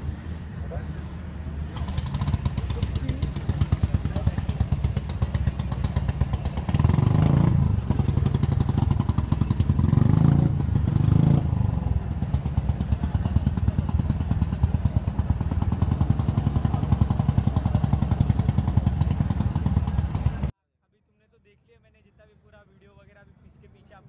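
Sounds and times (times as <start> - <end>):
vehicle engine idling and revving: 0.0 - 20.6.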